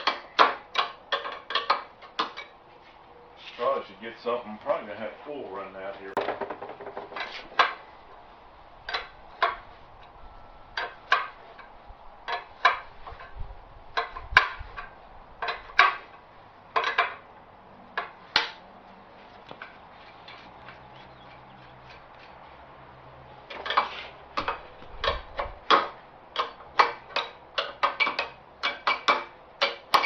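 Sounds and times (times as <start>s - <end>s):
wrench clinking on bolts: 0.0s - 2.6s, 23.6s - 30.0s.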